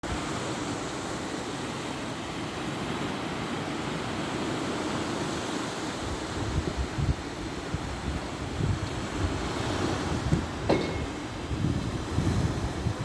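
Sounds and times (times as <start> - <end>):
sea waves washing ashore: 0.0 - 13.0.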